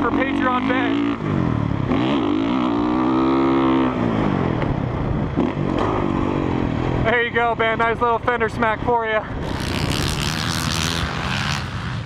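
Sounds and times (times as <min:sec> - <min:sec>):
dirt bike engine revving: 0:00.0 - 0:04.6, 0:09.4 - 0:12.0.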